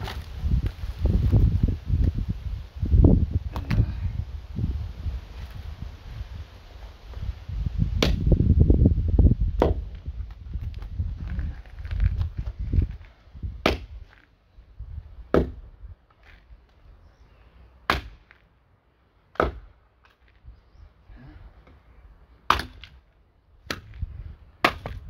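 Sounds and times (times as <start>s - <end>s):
axe chopping wood: 8.0s - 8.3s, 9.6s - 10.0s, 13.6s - 14.0s, 15.3s - 15.6s, 17.9s - 18.4s, 19.3s - 19.7s, 22.5s - 23.0s, 23.6s - 25.0s.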